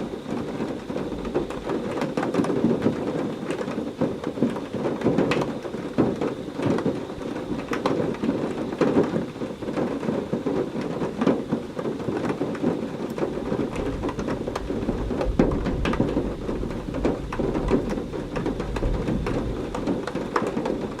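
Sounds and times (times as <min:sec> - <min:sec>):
heavy rain pouring: 0:00.0 - 0:21.0
thunder rumbling: 0:13.1 - 0:21.0.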